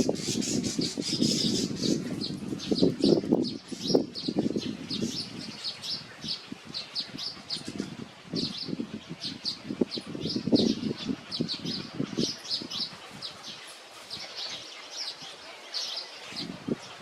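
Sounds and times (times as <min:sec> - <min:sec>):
small songbird chirping: 0:00.0 - 0:07.7.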